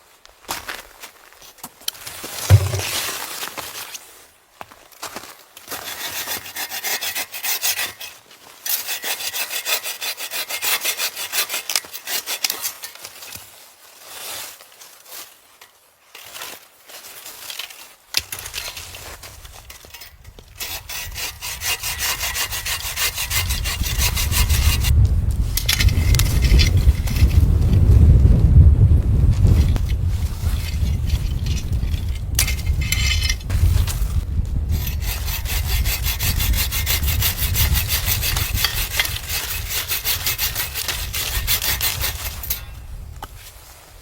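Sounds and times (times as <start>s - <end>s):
hand saw cutting wood: 2.4s - 3.1s, 5.7s - 13.4s, 17.6s - 24.9s, 30.5s - 33.5s, 34.7s - 42.7s
wind on microphone: 20.2s - 43.6s.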